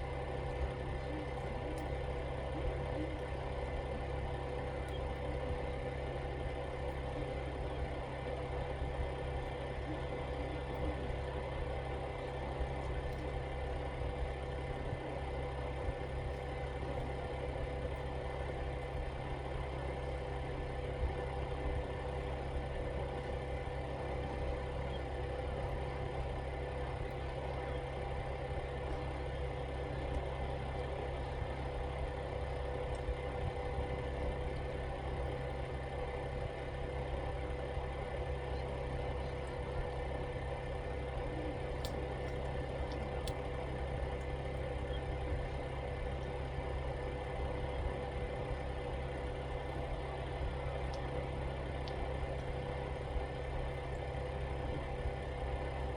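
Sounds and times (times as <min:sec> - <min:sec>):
mechanical hum: 0:00.0 - 0:55.9
faint clicks: 0:41.8 - 0:43.5.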